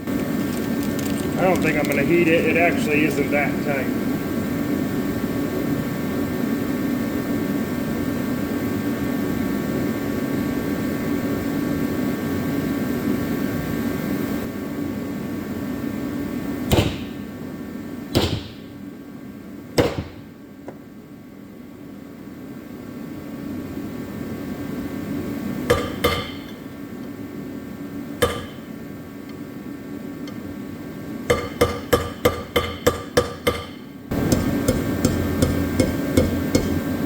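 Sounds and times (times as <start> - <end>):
machine hum: 0.0 - 37.0
hammer striking metal: 16.7 - 17.2, 18.2 - 18.6, 19.8 - 20.2, 25.7 - 26.6, 28.2 - 28.7, 31.3 - 36.9.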